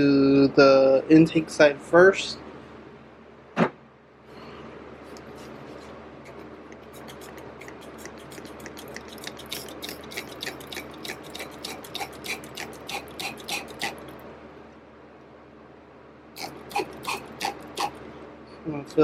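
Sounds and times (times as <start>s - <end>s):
spray bottle spraying: 6.8s - 13.7s.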